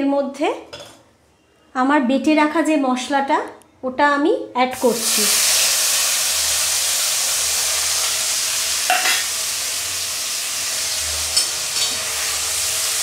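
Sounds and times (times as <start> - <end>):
spice paste sizzling in hot oil: 4.8 - 13.0.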